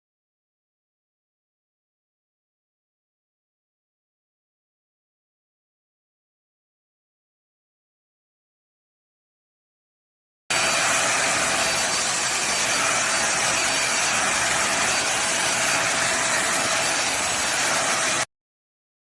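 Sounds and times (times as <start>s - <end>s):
handheld vacuum cleaner running: 10.5s - 18.3s.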